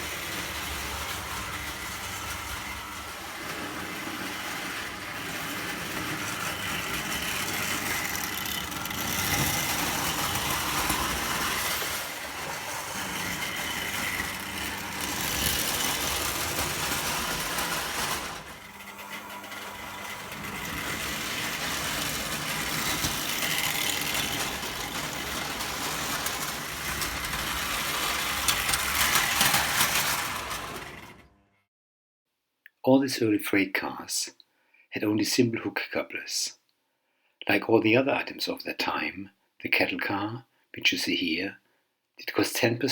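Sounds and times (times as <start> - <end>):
toy train rumbling on track: 0.0 - 31.3.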